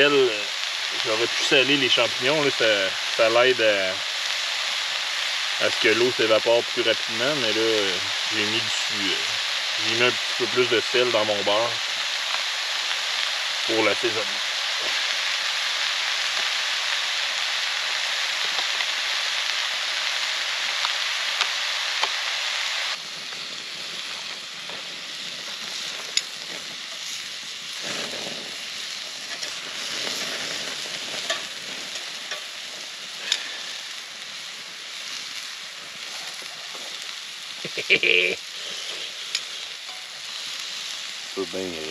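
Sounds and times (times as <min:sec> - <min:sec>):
mushrooms sizzling in a pan: 0:00.0 - 0:41.9
sharp pops and clicks: 0:18.4 - 0:19.0, 0:20.8 - 0:22.2, 0:25.6 - 0:27.2.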